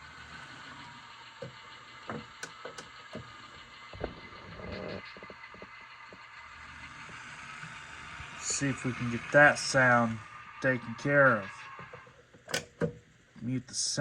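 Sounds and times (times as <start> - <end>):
model locomotive diesel sound: 0.0 - 14.0
clanking knocks from drive: 1.4 - 3.3.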